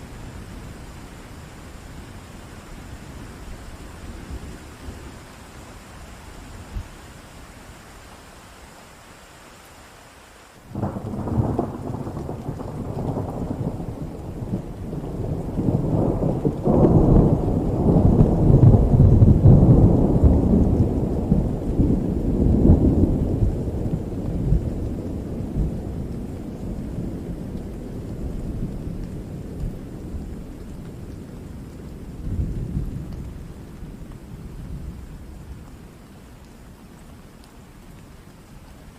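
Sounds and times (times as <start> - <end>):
steady rain: 0.0 - 38.9
rolling thunder: 10.7 - 35.6.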